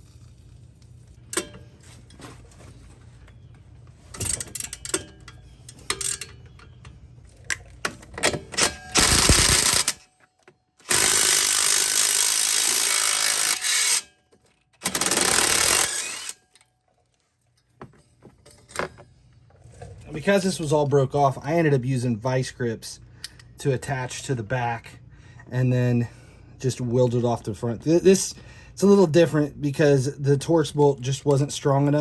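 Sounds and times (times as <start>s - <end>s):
metal tools clinking and knocking: 4.1s - 9.1s
power tool bursts: 8.6s - 10.0s, 10.8s - 14.1s, 14.8s - 16.4s.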